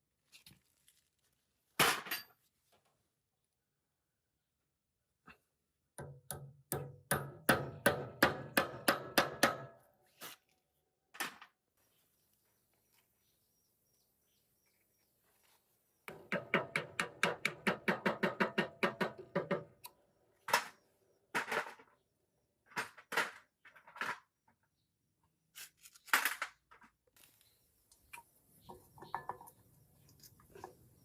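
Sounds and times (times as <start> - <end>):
sharp knocks and clatters: 16.1 - 19.8.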